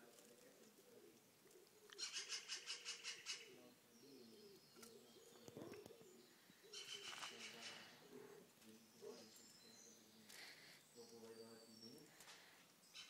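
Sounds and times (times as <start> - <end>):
high bird chirps: 1.9 - 8.0, 8.6 - 13.0
soft low cooing: 3.4 - 9.4.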